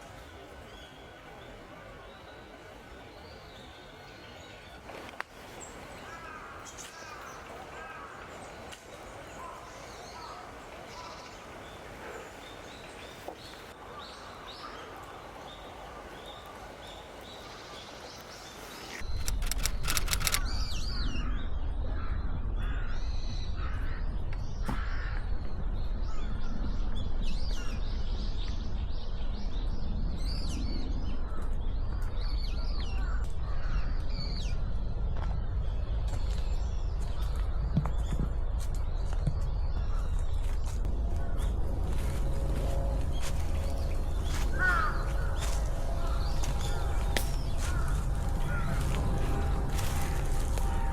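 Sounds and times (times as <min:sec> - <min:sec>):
wind rumble on microphone: 0:19.0 - 0:50.9
birds calling: 0:39.3 - 0:50.9.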